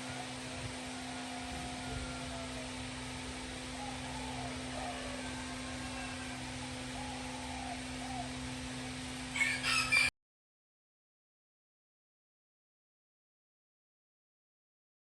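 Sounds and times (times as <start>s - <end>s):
rooster crowing: 0.0s - 10.1s
steady background hum: 0.0s - 10.1s.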